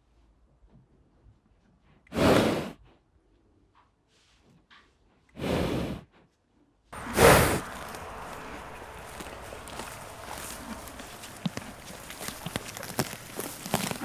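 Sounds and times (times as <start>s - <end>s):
horse snorting: 7.0s - 14.0s
steady background noise: 7.0s - 14.0s.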